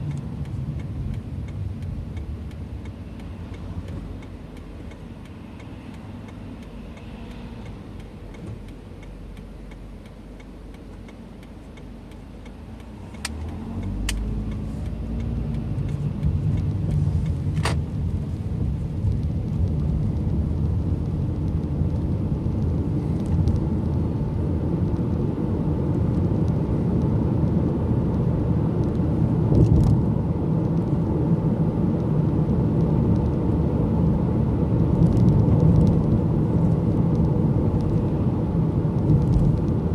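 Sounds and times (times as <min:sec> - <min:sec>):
sharp clicks: 0:00.0 - 0:17.8
car engine: 0:00.0 - 0:39.9
road noise inside car: 0:00.0 - 0:39.9.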